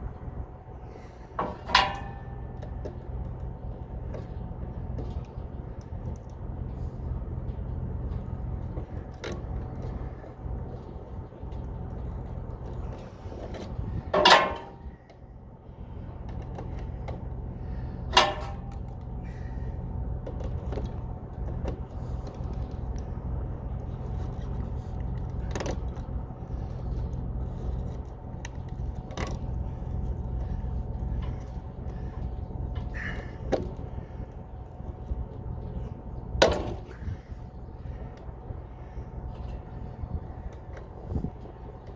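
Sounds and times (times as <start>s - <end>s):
vehicle engine humming: 0.0s - 41.9s.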